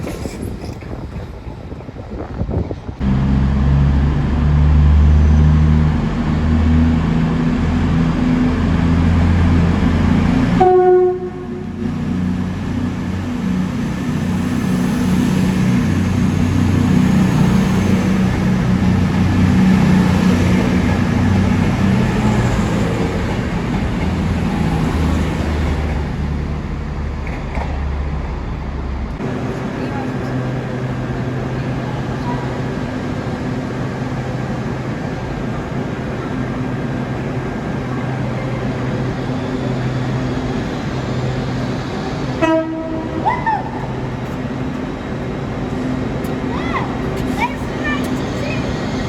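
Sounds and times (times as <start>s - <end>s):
train engine rumbling: 0.0s - 49.0s
train horn blast: 10.6s - 11.8s, 42.4s - 43.3s.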